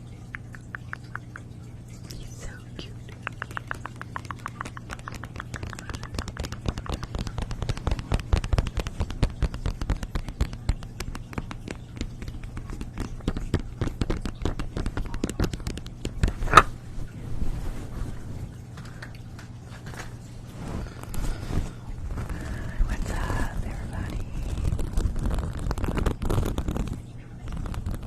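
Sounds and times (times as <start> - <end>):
steady low hum: 0.0 - 28.0
quick irregular clicks: 0.3 - 1.6, 3.0 - 16.7.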